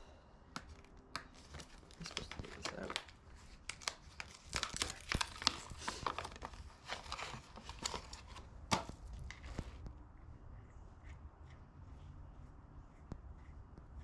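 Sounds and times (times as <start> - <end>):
packaging crinkling and tearing: 0.7 - 9.8.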